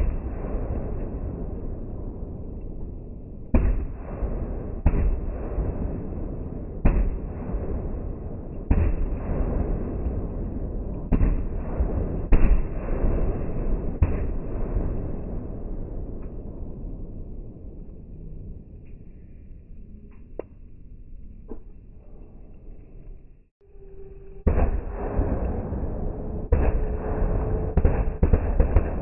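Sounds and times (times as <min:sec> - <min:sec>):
low rumble: 0:00.0 - 0:29.0.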